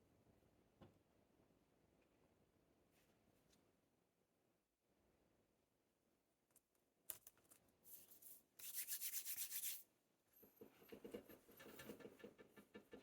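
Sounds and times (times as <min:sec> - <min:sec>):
hands rubbing and scraping: 0:07.9 - 0:09.8.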